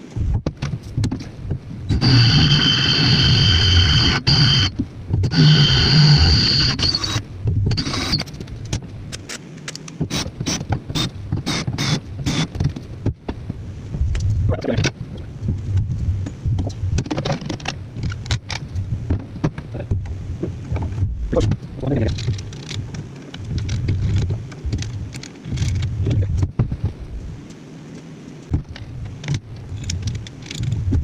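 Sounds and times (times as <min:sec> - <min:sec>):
steady low rumble: 0:00.0 - 0:09.3, 0:10.0 - 0:31.0
irregular clicks and knocks: 0:06.8 - 0:31.0.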